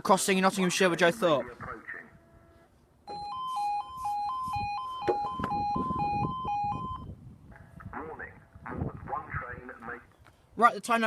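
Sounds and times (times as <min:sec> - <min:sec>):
level crossing alarm warbling: 0:03.1 - 0:07.2.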